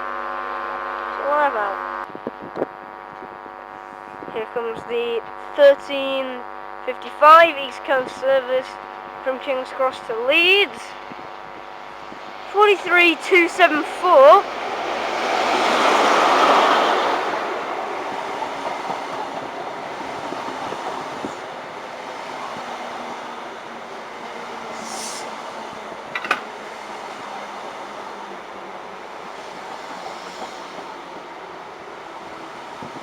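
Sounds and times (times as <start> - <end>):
diesel train passing: 7.3 - 33.0
sharp metal clank: 26.2 - 26.5.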